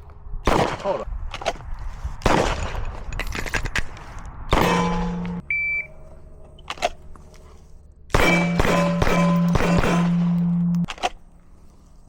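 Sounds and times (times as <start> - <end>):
pistol shots: 0.5 - 1.0, 8.1 - 10.6.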